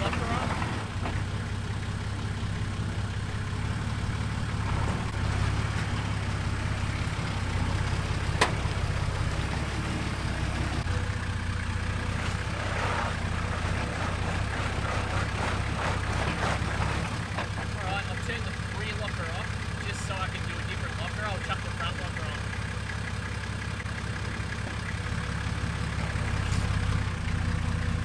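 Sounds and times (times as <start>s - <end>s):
engine running at low revs: 0.0s - 28.0s.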